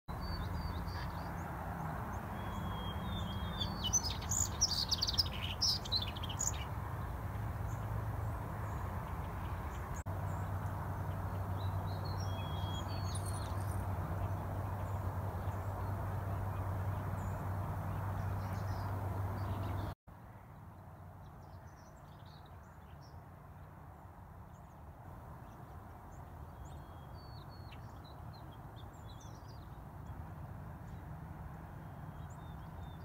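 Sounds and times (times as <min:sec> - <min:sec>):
birds chirping: 0:00.1 - 0:20.0.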